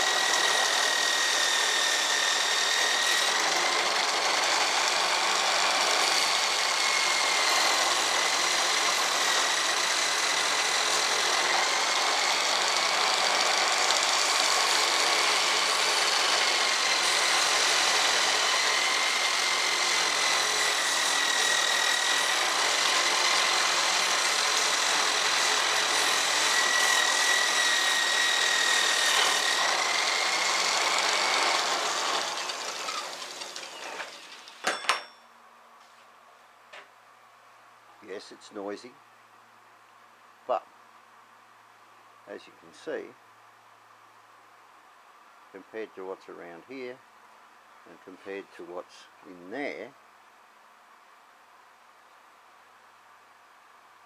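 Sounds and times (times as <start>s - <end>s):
sanding belt rushing noise: 0.0s - 34.3s
electric drill whining: 0.0s - 34.6s.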